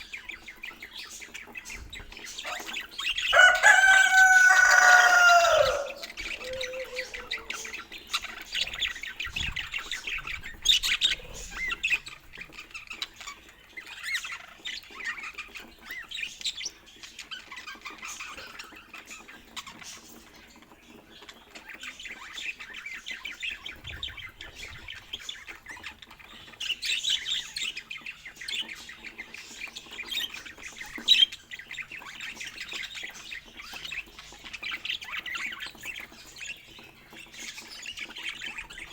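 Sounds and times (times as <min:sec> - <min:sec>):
budgerigars chattering: 0:00.0 - 0:38.9
rooster crowing: 0:03.3 - 0:07.8.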